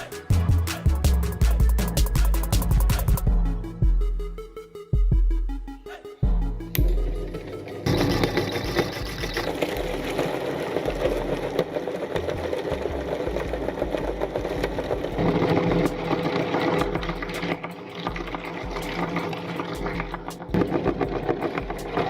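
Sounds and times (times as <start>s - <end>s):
electric meat grinder running: 7.8s - 22.0s.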